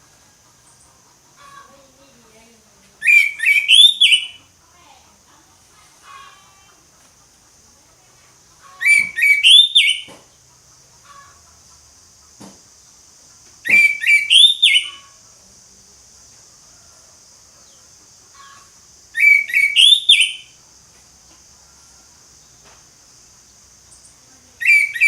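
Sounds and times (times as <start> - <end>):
steady high hiss: 0.0 - 25.0
bird whistled song: 3.0 - 4.4, 8.8 - 10.2, 13.6 - 15.1, 19.1 - 20.6, 24.6 - 25.0.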